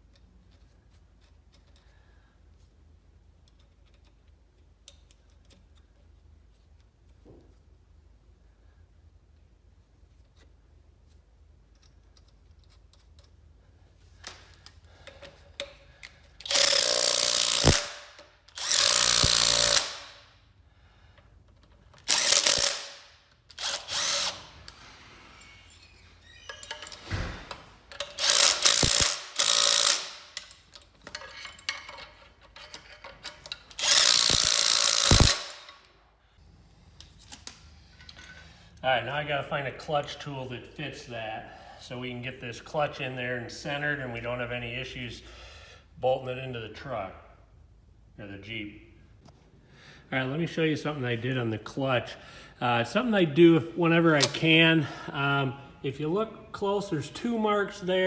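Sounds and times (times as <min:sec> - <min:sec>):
power tool running in bursts: 0:16.5 - 0:17.9, 0:18.6 - 0:20.1, 0:22.1 - 0:23.0, 0:28.2 - 0:30.2, 0:33.8 - 0:35.6.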